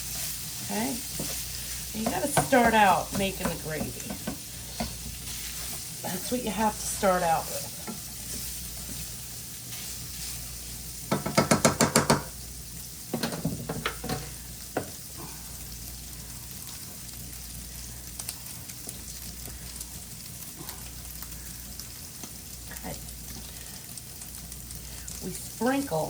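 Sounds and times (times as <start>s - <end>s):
sausage sizzling in a pan: 0.0s - 26.0s
utensil knocking on pan: 2.0s - 4.9s, 11.1s - 12.3s.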